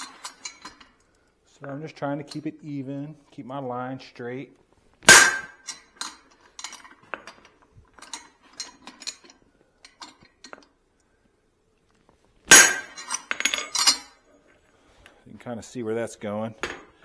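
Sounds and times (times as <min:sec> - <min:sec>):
light metallic clinks: 0:00.0 - 0:01.3, 0:05.1 - 0:10.7, 0:12.5 - 0:14.2
hammer striking steel: 0:05.1 - 0:05.7, 0:12.5 - 0:13.1.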